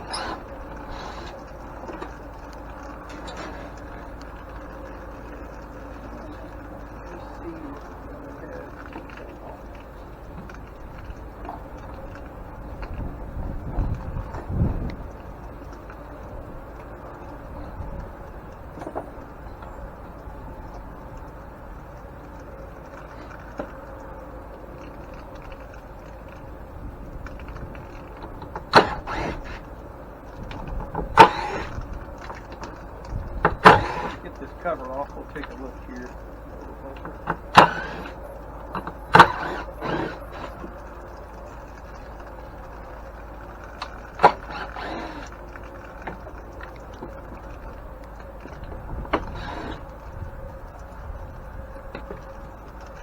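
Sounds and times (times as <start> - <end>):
steady low hiss: 0.0 - 53.0
steady low hum: 0.0 - 53.0.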